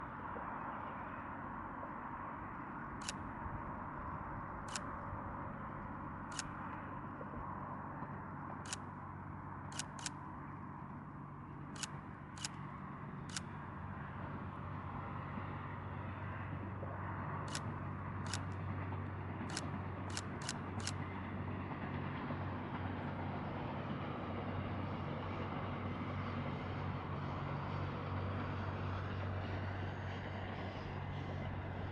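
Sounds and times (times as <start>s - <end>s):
low steady train hum: 0.0s - 31.9s
camera shutters clicking: 9.7s - 10.2s, 19.5s - 21.0s.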